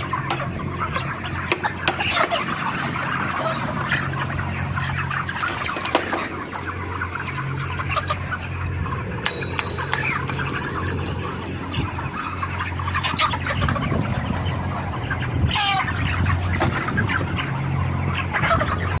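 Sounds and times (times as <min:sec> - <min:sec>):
chicken squawk: 0:00.0 - 0:19.0
chickens clucking: 0:00.0 - 0:19.0
low hum: 0:06.3 - 0:16.4.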